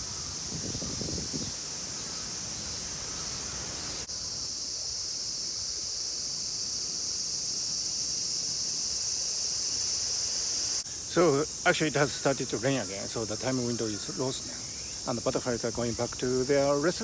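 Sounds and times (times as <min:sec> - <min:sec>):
cicadas shrilling: 0:00.0 - 0:17.0.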